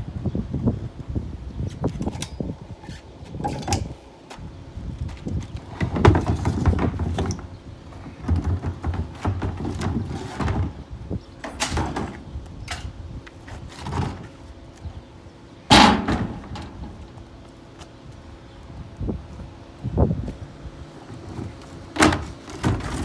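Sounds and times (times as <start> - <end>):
knocking and clattering of bins: 5.6 - 14.4, 15.7 - 17.2, 21.1 - 23.0.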